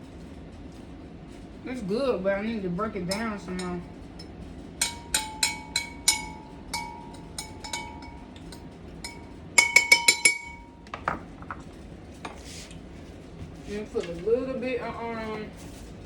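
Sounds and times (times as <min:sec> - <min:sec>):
utensil clinking against glass: 0:03.1 - 0:10.7.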